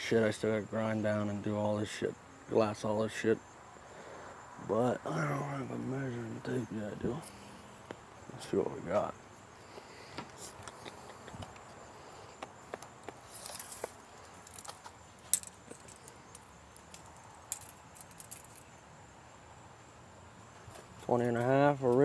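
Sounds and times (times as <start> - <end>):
tape measure clicks and rattles: 13.3 - 18.7.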